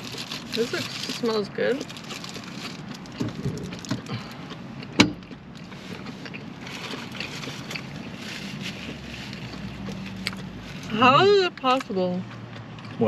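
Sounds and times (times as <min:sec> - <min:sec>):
person chewing food: 0:02.0 - 0:10.6.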